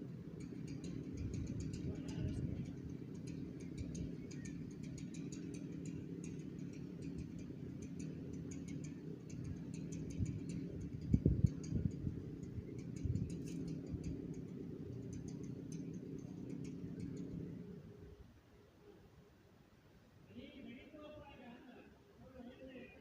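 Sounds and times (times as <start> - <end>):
steady low rumble: 0.0 - 18.4.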